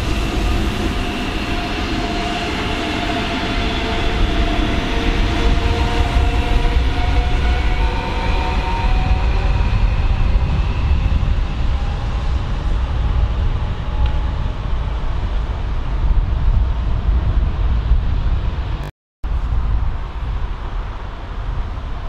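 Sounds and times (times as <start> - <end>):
electric train whine: 0.0 - 17.1.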